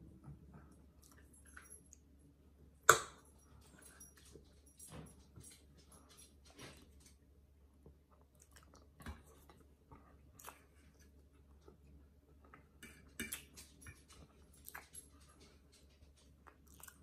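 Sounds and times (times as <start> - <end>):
man chewing: 16.4 - 17.0.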